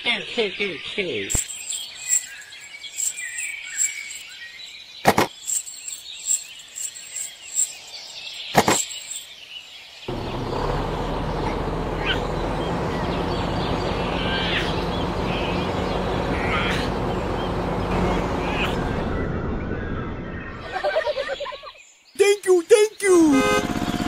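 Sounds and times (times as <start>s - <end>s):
small metal chain clinking: 1.4s - 4.3s, 5.4s - 9.3s.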